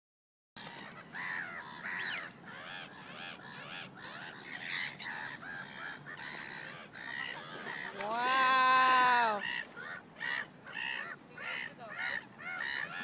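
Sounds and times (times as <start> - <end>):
birds calling: 0.6 - 13.0.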